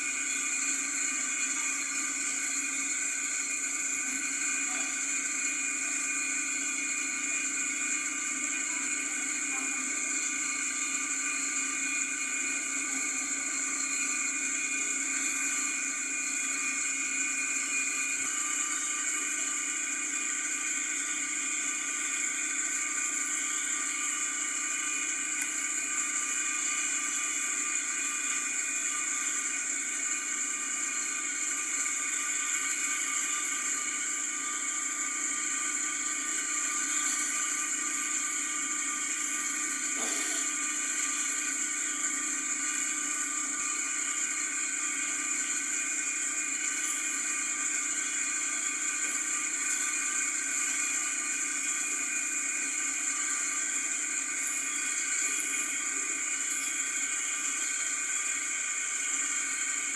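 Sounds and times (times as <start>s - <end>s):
steady whirring hum: 0.0s - 59.9s.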